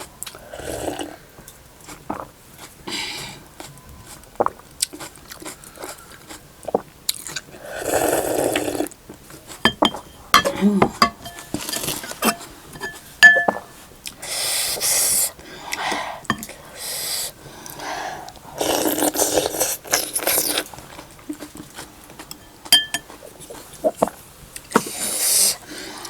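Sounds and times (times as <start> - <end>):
slurping hot soup: 0.3 - 1.3, 1.9 - 13.0, 16.7 - 22.0, 23.1 - 26.0
chewing and smacking: 3.6 - 7.5, 19.8 - 25.0.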